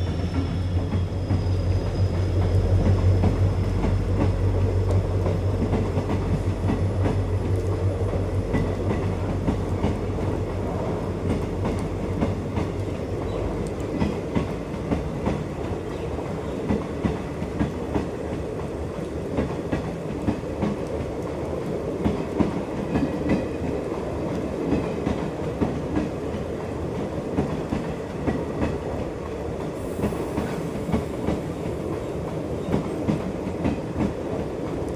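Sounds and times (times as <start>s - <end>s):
train coaches rumbling: 0.0s - 34.9s.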